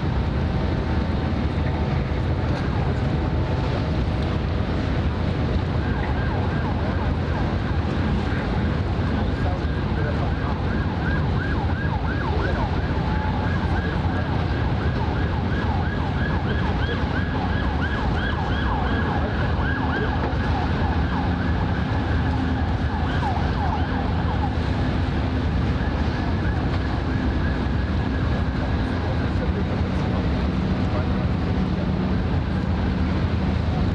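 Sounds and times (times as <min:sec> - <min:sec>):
low traffic rumble: 0:00.0 - 0:33.9
siren yelping: 0:05.7 - 0:08.2, 0:09.0 - 0:29.4.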